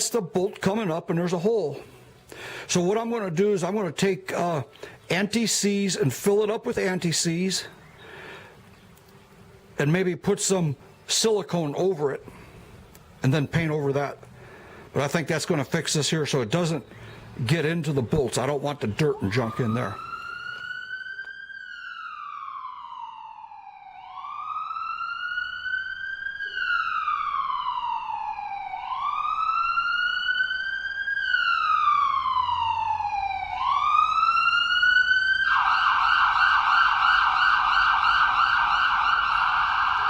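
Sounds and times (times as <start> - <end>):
emergency siren wailing and yelping: 17.2 - 40.0.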